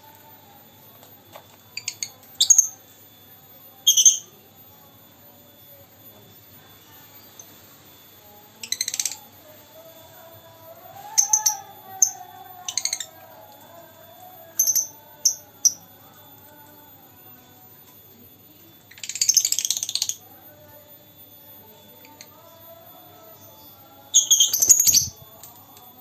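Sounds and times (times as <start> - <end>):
bird shrill chirps: 24.2 - 25.2.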